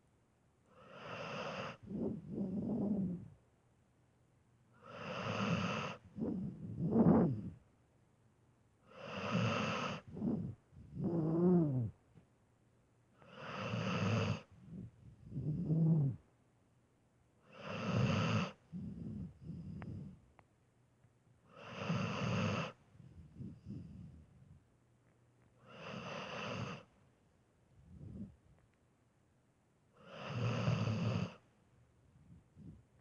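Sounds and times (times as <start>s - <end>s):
dog snoring: 0.7s - 3.3s, 4.8s - 7.6s, 8.8s - 12.0s, 13.2s - 16.2s, 17.4s - 20.2s, 21.5s - 24.3s, 25.6s - 26.9s, 30.0s - 31.4s.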